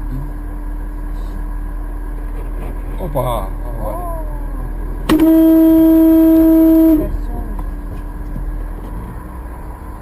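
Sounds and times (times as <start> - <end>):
road noise: 0.0 - 10.0
car horn blast: 5.1 - 7.3.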